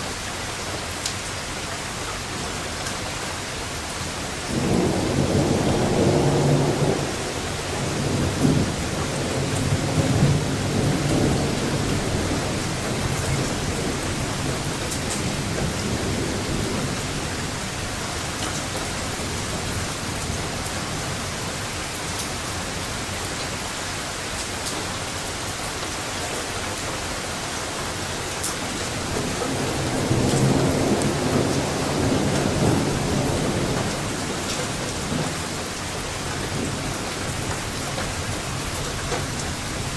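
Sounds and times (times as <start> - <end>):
steady rain: 0.0 - 39.9
thunder rolling: 4.5 - 21.1, 28.6 - 35.6.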